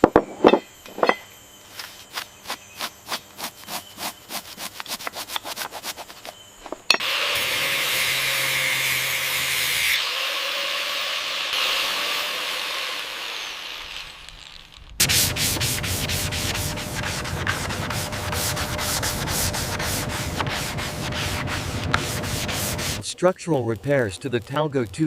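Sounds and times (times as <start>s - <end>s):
hand sanding strokes: 1.9s - 6.4s, 15.0s - 23.0s.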